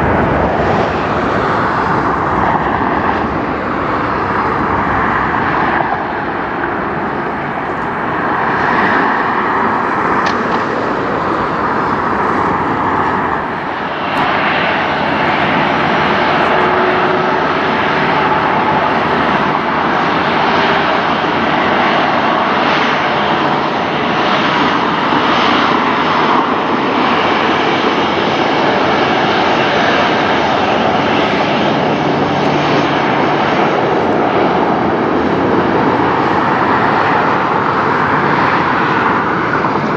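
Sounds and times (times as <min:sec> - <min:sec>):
jet engines at takeoff: 0:00.0 - 0:39.9.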